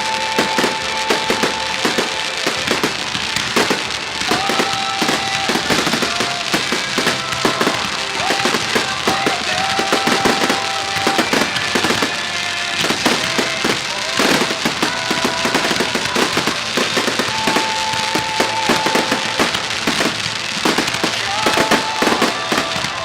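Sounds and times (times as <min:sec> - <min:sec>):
fireworks bangs and crackles: 0:00.0 - 0:23.0
music: 0:00.0 - 0:23.0.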